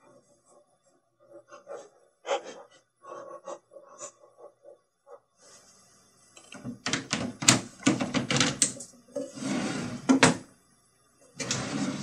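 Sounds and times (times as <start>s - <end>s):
wooden drawers opening and shutting: 6.5s - 10.4s, 11.4s - 12.0s.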